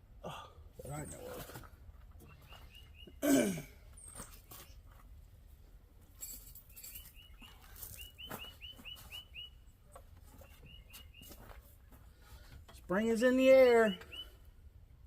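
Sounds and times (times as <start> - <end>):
small bird chirping: 2.2 - 3.2, 6.6 - 11.5, 13.8 - 14.4.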